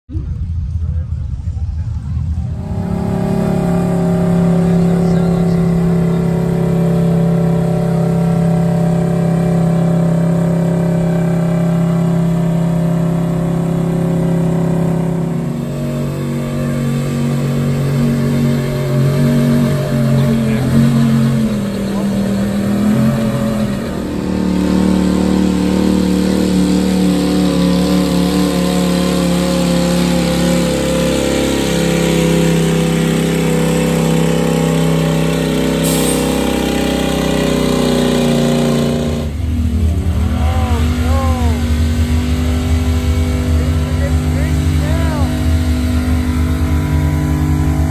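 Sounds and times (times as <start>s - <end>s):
truck engine revving under load: 0.2s - 47.9s.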